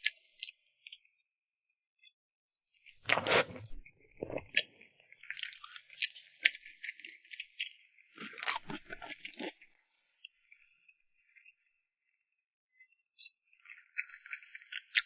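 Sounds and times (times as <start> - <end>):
chewing with crackly clicks: 4.5 - 10.7, 13.2 - 15.0.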